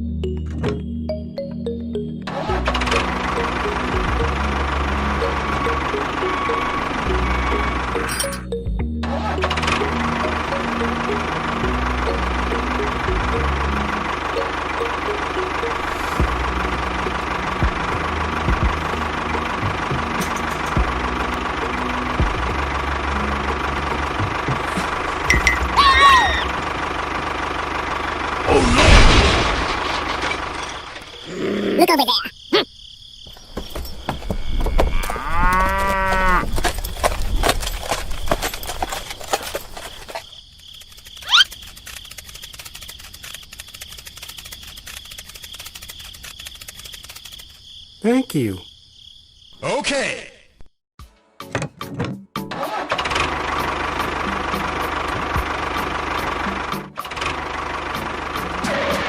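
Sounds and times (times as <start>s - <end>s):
insect chirring: 30.7s - 36.9s, 38.1s - 49.6s
cow mooing: 34.8s - 36.6s.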